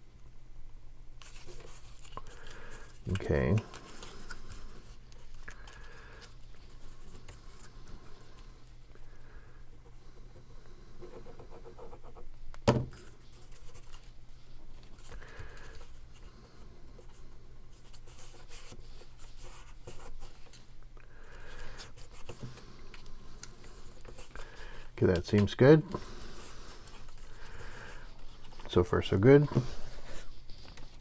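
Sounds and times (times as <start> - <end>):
paper rubbing and rustling: 1.2 - 8.4, 17.1 - 20.6, 21.7 - 31.0.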